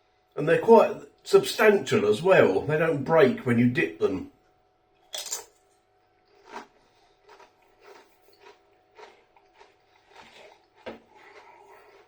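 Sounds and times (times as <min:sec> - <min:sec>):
crunching tortilla chip: 0:06.2 - 0:12.0.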